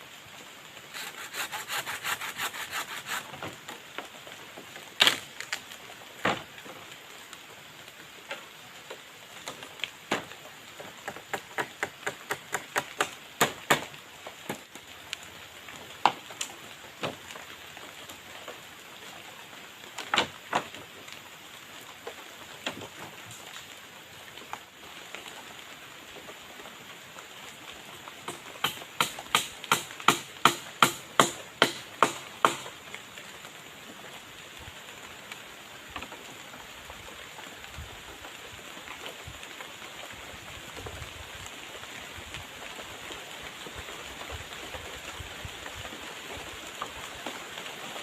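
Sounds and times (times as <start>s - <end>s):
steady rain: 0.0s - 48.0s
knocks of wood worked by hand: 1.0s - 3.6s, 11.0s - 14.6s, 28.2s - 32.8s.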